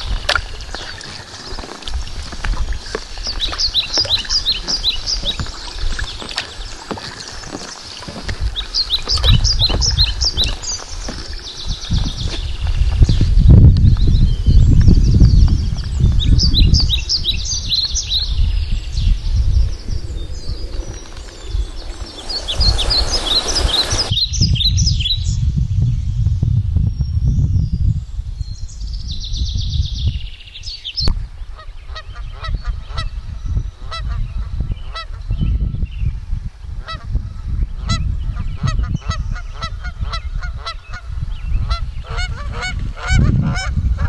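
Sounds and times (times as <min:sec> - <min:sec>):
wind rumble on microphone: 0:00.0 - 0:44.0
wild birds calling: 0:02.8 - 0:12.7, 0:16.3 - 0:24.2.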